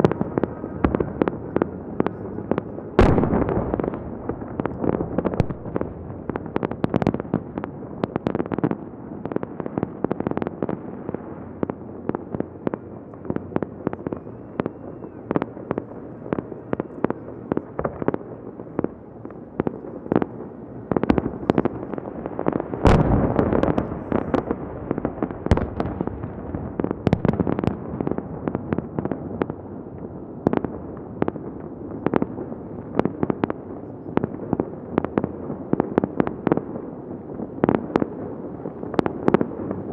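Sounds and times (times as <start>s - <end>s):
fireworks bursting with sharp bangs: 0.0s - 39.9s
continuous rumble: 33.3s - 39.9s.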